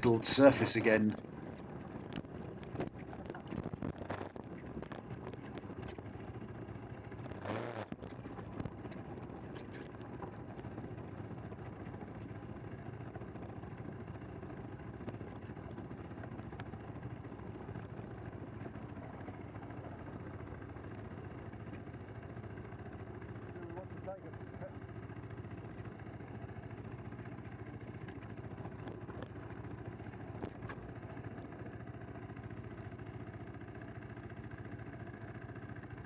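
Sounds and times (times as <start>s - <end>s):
motorcycle engine running: 0.0s - 4.1s, 16.2s - 36.0s.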